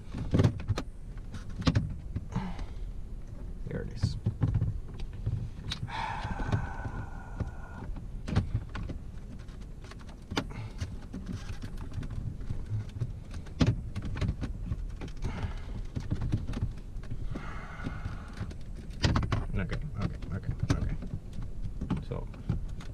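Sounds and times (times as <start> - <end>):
steady low rumble: 0.0 - 22.9
plastic parts clicking and rattling: 6.4 - 22.9.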